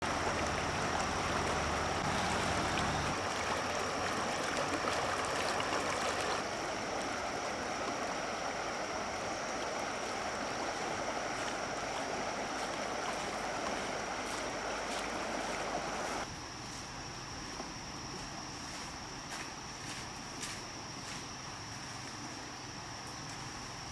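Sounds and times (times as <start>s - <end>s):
water rushing: 0.0s - 16.3s.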